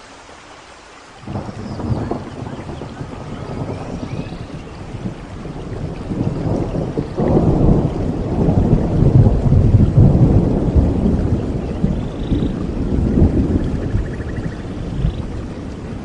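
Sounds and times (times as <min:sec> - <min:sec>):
steady rain: 0:00.0 - 0:16.0
thunder rumbling: 0:01.2 - 0:16.0.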